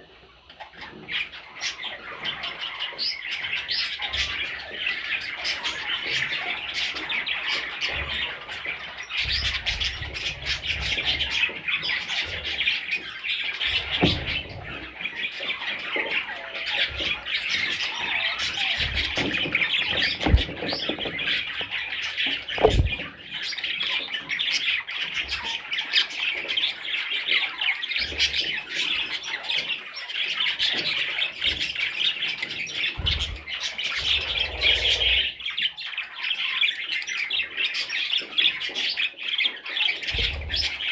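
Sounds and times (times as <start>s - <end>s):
budgerigars chattering: 0.7s - 40.9s
dull thumps: 18.8s - 23.2s.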